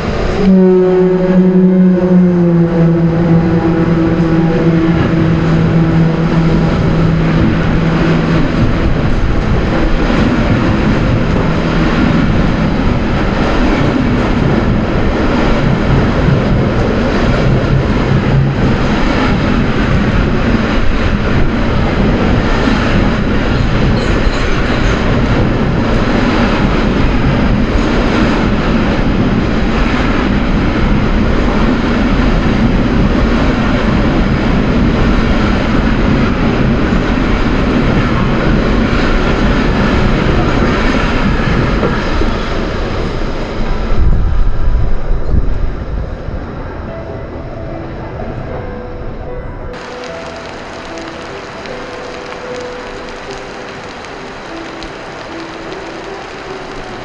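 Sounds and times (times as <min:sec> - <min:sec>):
train carriages rumbling and rattling: 0:00.0 - 0:57.0
low tone with overtones: 0:00.4 - 0:18.8.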